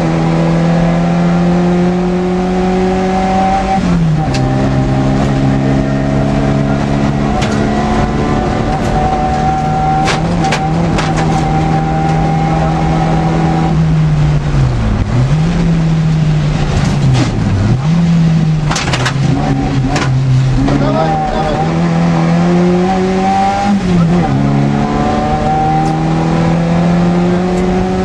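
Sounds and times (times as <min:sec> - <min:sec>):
rally car engine running hard: 0:00.0 - 0:28.0
car body knocks and rattles: 0:09.9 - 0:11.7, 0:18.6 - 0:20.2.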